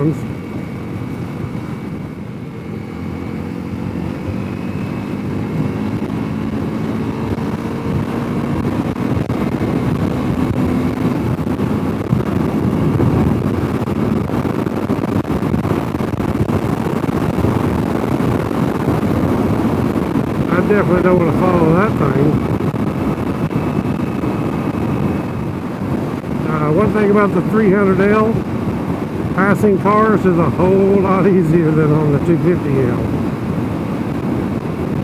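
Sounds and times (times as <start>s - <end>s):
motorcycle engine accelerating: 0.0s - 35.0s
wind rush: 0.0s - 35.0s.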